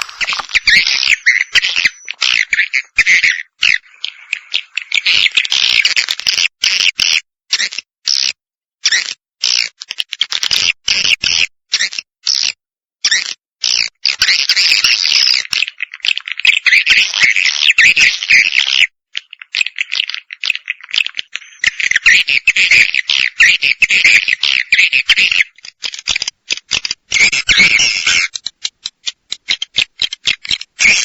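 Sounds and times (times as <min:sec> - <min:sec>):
rattling clicks: 0:00.0 - 0:02.3
swiftlet twittering chatter: 0:00.0 - 0:05.5.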